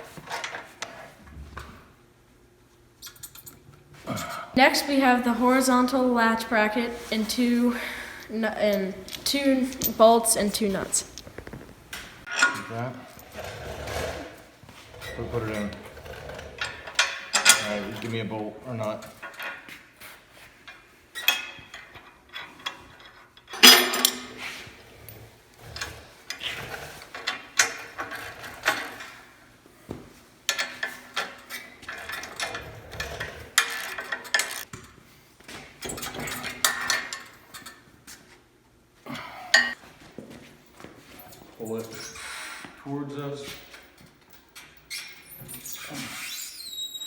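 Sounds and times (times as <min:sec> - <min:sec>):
metal clinks knocks and scrapes: 0:08.2 - 0:18.2, 0:18.8 - 0:29.4, 0:30.5 - 0:38.0.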